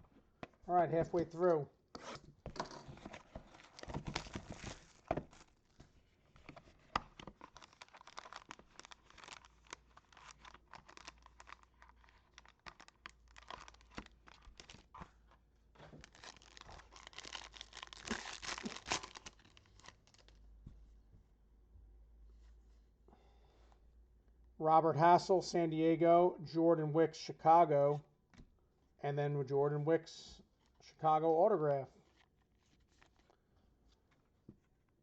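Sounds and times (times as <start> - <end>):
packaging tearing and crinkling: 3.2 - 5.6, 7.0 - 15.1, 16.0 - 20.3.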